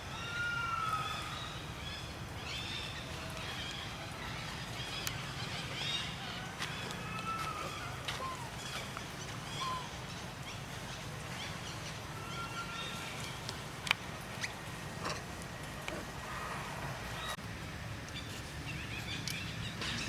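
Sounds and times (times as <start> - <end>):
monkeys squeaking and chirping: 9.5 - 10.0.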